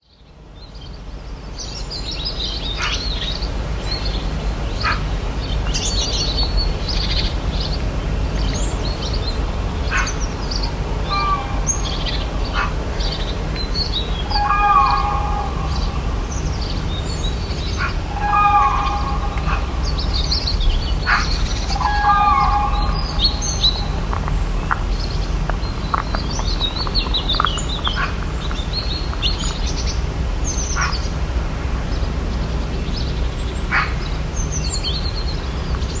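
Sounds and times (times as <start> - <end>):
low background noise: 0.1 - 36.0
birds chirping: 2.4 - 31.2
lower bird call: 9.9 - 31.1.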